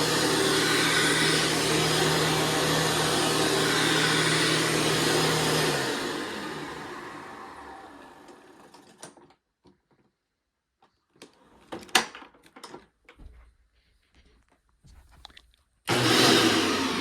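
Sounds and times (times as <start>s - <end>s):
vacuum cleaner motor spinning down: 0.0s - 9.0s, 15.9s - 17.0s.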